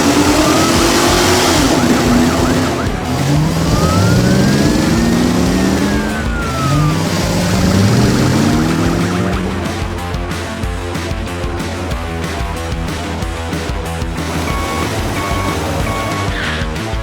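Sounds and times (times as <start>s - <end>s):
siren-like tone: 0.0s - 9.9s, 14.4s - 16.6s
cartoon engine revving: 0.0s - 10.5s, 14.2s - 17.0s.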